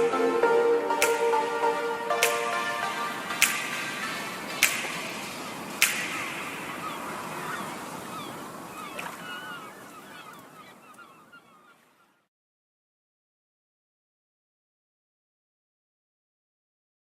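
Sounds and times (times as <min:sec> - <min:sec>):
noisy wash: 0:00.0 - 0:10.8
short chirping calls: 0:02.3 - 0:11.8.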